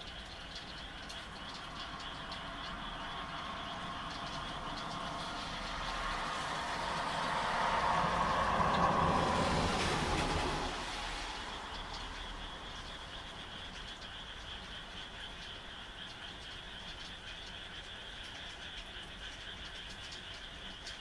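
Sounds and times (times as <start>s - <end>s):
frogs croaking: 0.0s - 21.0s
rushing noise: 3.2s - 13.4s.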